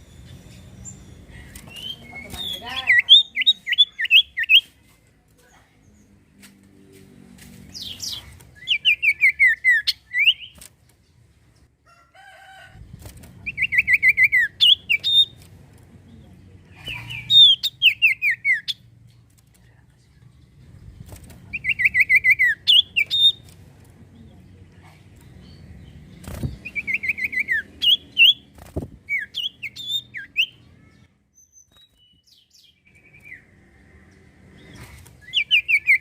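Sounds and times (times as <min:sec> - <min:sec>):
bird whistled song: 0:07.8 - 0:10.6, 0:17.0 - 0:18.8, 0:21.6 - 0:23.4, 0:26.6 - 0:28.4, 0:29.1 - 0:33.4, 0:35.2 - 0:36.0.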